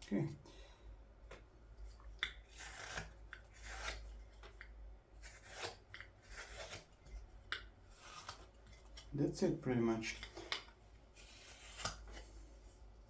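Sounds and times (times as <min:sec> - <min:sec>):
carving knife scraping wood: 0:02.1 - 0:09.2, 0:10.1 - 0:12.5.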